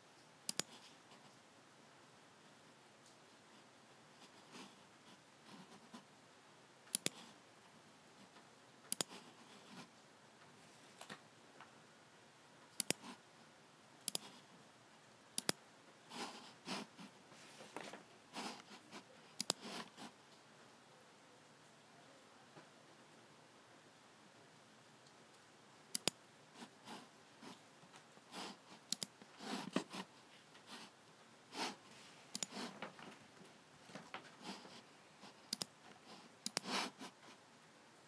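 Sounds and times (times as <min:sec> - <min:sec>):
computer mouse button clicking: 0:06.9 - 0:07.2, 0:12.8 - 0:13.0, 0:15.4 - 0:15.6, 0:25.9 - 0:26.2, 0:32.3 - 0:32.5
soft rustling: 0:09.2 - 0:11.8, 0:16.0 - 0:20.7, 0:26.5 - 0:37.5.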